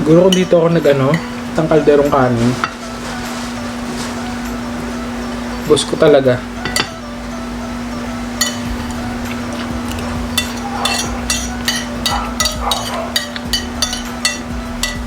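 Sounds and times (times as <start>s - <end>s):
steady low hum: 0.0s - 15.0s
spoon clinking against dish: 0.2s - 1.4s, 6.6s - 7.0s, 8.4s - 15.0s.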